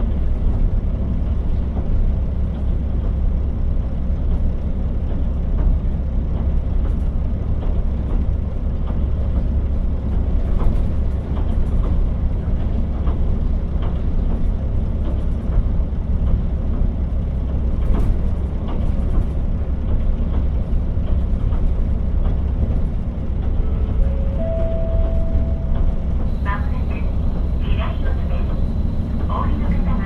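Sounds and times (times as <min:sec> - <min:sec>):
diesel engine rumble: 0:00.0 - 0:30.0
short tone: 0:23.6 - 0:26.1.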